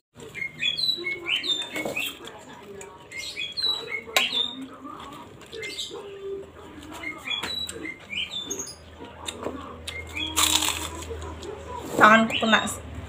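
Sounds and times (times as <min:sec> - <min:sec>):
small birds chirping: 0:00.2 - 0:12.9
sharp crunches or clicks: 0:09.2 - 0:11.4.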